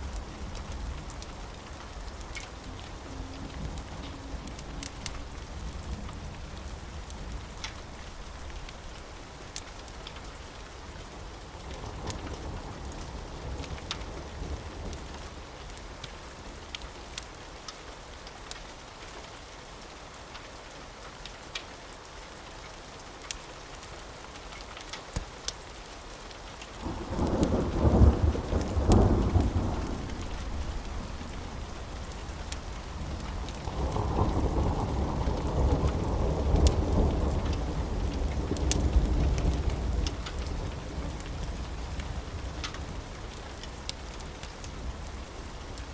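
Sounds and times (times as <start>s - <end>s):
steady rain: 0.0s - 45.9s
thunder rumbling: 26.8s - 43.4s.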